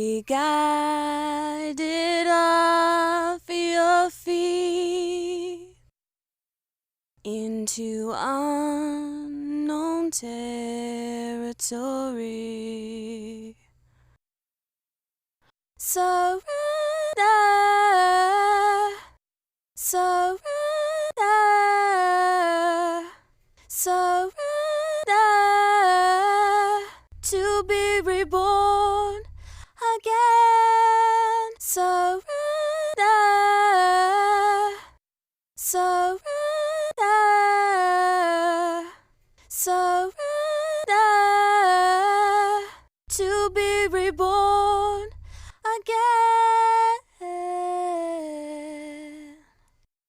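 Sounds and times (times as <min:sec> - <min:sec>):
woman singing without words: 0:00.0 - 0:05.8, 0:07.2 - 0:13.7, 0:15.8 - 0:19.2, 0:19.8 - 0:35.0, 0:35.6 - 0:49.6
faint low pulse: 0:27.1 - 0:29.7, 0:43.1 - 0:45.6.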